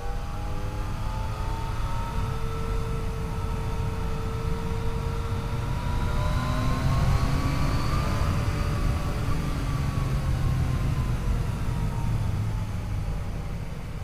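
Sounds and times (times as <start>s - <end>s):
motorcycle engine accelerating: 4.6s - 12.6s.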